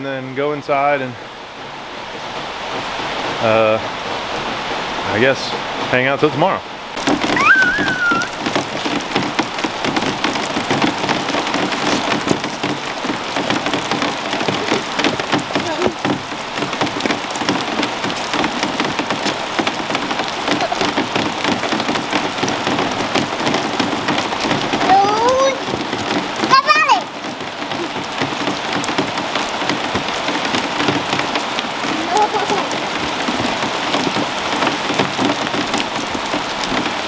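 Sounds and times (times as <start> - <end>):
rain falling on roof: 0.0 - 37.0
gliding squeak: 7.4 - 8.4.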